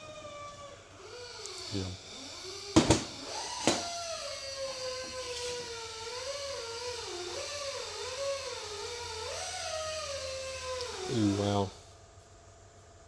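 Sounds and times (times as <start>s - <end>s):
animal howling: 0.0s - 1.8s
sharp knock: 2.8s - 3.9s.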